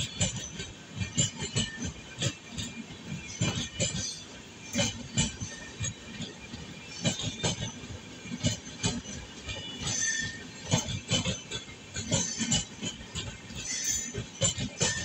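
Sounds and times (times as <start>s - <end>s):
train rumble: 0.0s - 15.0s
high wheel squeal: 13.5s - 15.0s.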